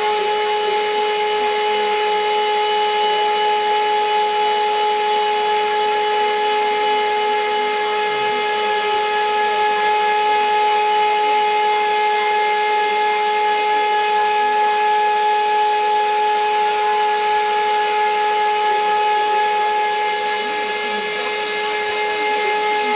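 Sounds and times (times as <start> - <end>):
milling spindle whine: 0.0 - 22.9
cutting noise: 16.6 - 22.9.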